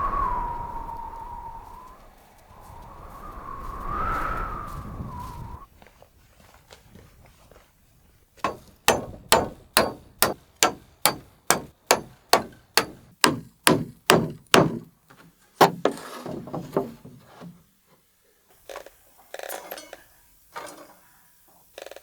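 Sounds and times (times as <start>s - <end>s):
hammer blows: 8.4s - 14.9s, 15.6s - 17.2s.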